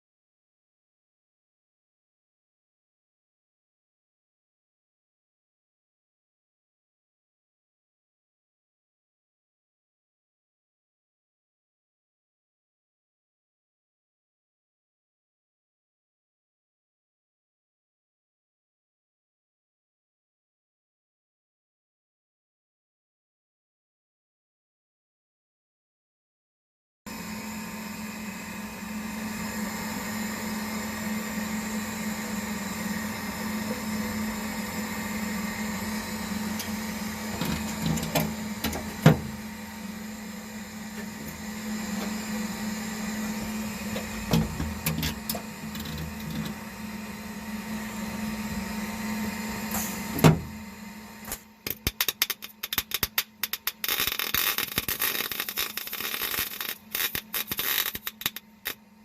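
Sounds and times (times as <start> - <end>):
low machine hum: 27.1 - 52.7
irregular stop-start scraping: 36.4 - 39.5, 40.9 - 46.7.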